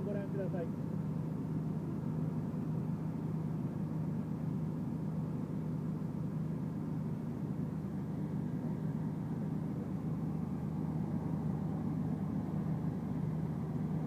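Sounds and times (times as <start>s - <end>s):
wood chipper engine drone: 0.0s - 14.0s.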